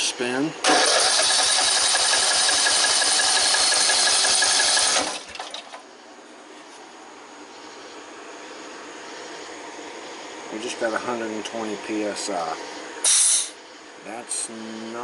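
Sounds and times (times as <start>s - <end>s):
engine cranking by starter: 0.6s - 5.8s.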